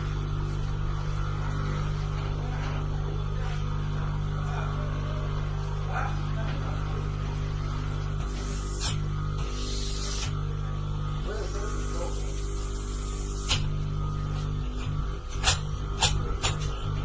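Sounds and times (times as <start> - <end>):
air conditioner compressor humming: 0.0 - 17.0.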